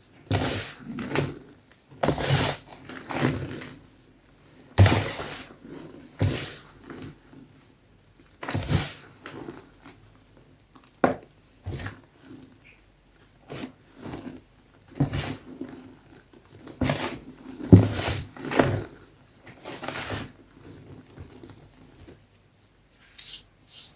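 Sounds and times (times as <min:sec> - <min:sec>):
chalk being crushed: 0:22.2 - 0:23.9.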